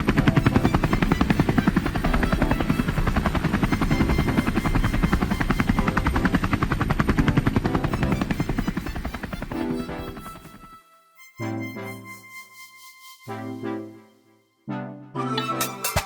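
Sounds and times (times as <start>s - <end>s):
helicopter rotor chopping: 0.0s - 10.7s.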